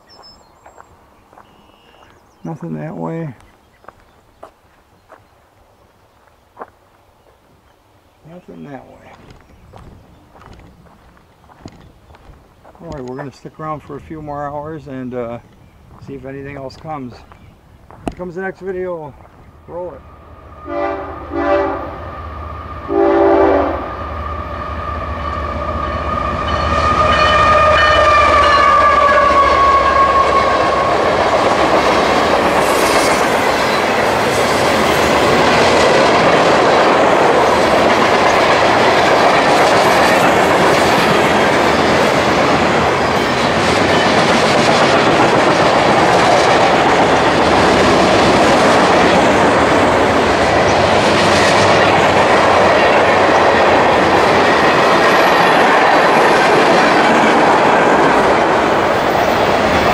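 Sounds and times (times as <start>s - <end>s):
train horn blasts: 20.6s - 31.2s
train wheels clattering over rails: 31.0s - 59.9s.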